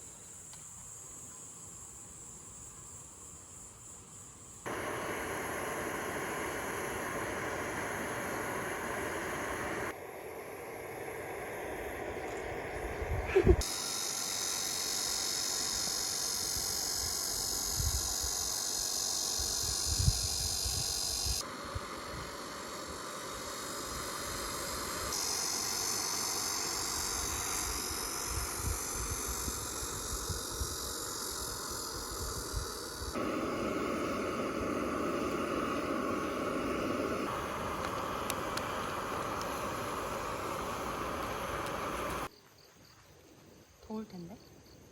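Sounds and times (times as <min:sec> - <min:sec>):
cicadas buzzing: 0:00.0 - 0:43.0.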